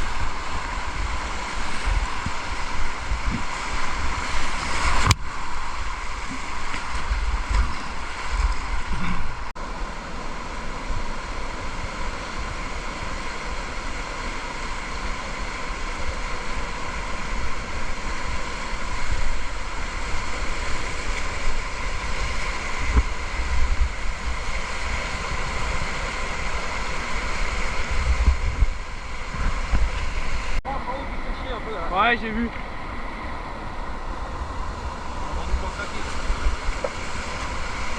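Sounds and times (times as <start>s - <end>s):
wind buffeting microphone: 0.0s - 9.5s, 15.8s - 30.6s
river water rushing: 0.0s - 37.9s.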